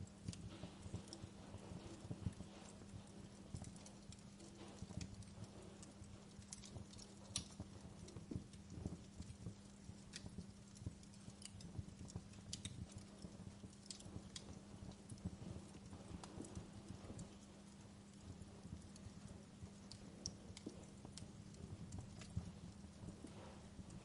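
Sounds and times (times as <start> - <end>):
fire crackling: 0.0 - 24.0
steady low hum: 0.0 - 24.0.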